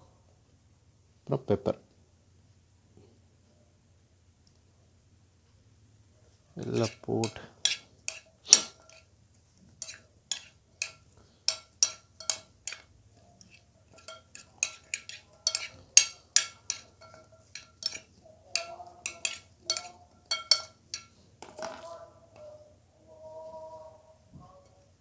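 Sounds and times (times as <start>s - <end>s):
spoon clinking against bowl: 9.8s - 22.5s.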